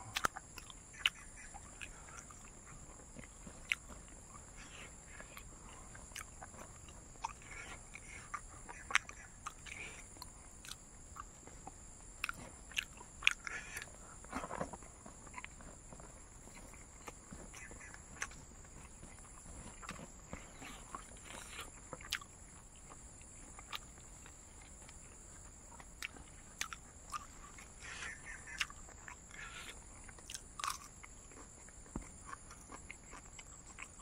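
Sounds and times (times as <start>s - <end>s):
mouth clicks: 0.0s - 14.6s, 25.7s - 31.4s
person chewing food: 0.0s - 34.0s.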